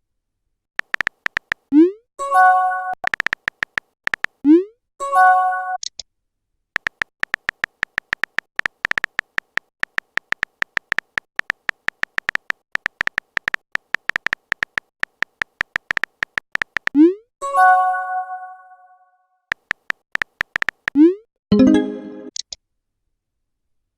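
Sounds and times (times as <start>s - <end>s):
short high typing beeps: 0.8s - 2.0s, 2.8s - 4.7s, 6.8s - 17.2s
message alert swoop and chime: 21.5s - 22.3s.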